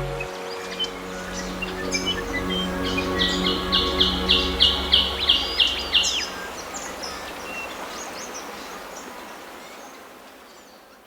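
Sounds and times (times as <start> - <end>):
low steady hum: 0.8 - 8.6.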